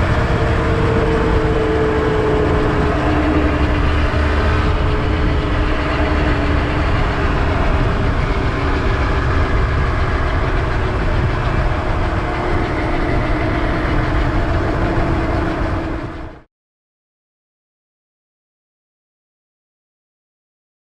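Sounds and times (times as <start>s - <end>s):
heavy low rumble: 0.0s - 16.5s
two-stroke engine running: 0.0s - 16.5s.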